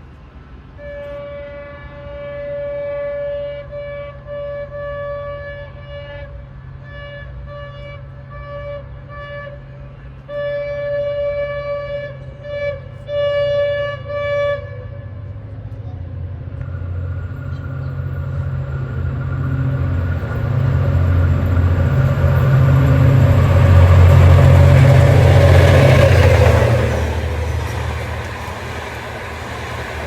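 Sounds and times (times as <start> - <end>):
locomotive horn blasts: 0.8 - 15.8
locomotive engine idling: 12.2 - 30.0.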